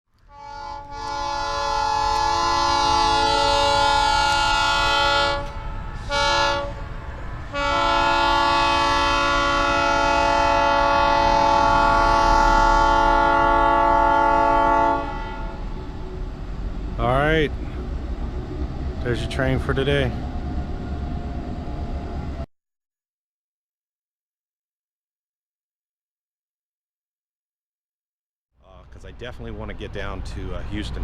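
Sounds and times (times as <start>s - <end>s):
locomotive air horn: 0.2s - 15.9s.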